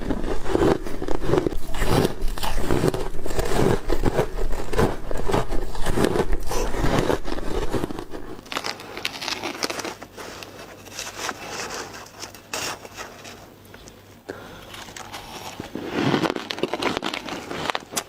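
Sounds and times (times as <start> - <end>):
ice being chewed crunching: 0.0 - 12.2, 13.8 - 18.0.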